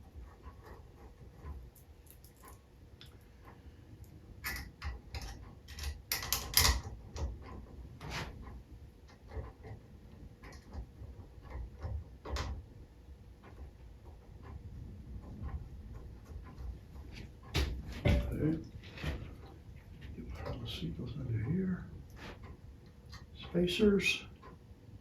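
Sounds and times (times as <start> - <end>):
small metal parts clicking: 1.8 - 3.2.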